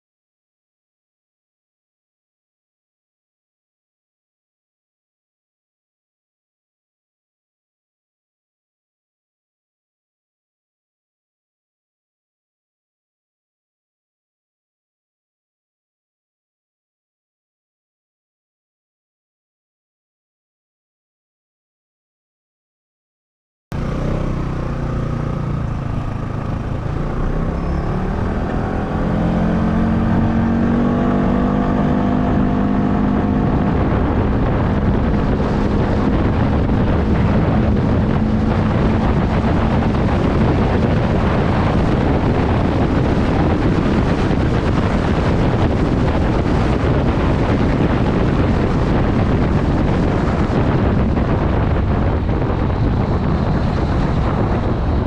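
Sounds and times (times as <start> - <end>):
motorcycle engine: 23.7 - 55.0
wind buffeting microphone: 23.8 - 55.0.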